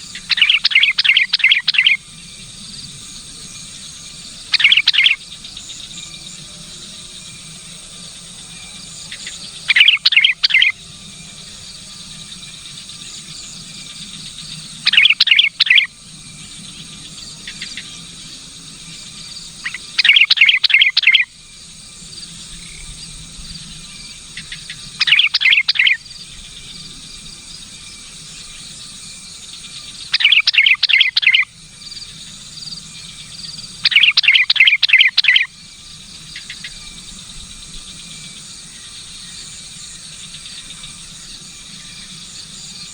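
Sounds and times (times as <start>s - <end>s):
insect chirring: 0.0s - 42.9s
bird chattering calls: 0.2s - 2.0s, 4.5s - 5.2s, 9.1s - 10.8s, 14.8s - 15.9s, 19.6s - 21.3s, 24.4s - 26.2s, 30.0s - 31.5s, 33.7s - 35.5s.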